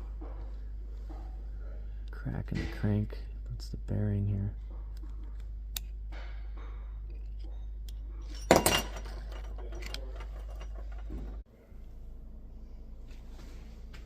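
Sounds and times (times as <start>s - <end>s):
low hum: 0.0s - 14.0s
metal parts clinking: 8.2s - 11.4s.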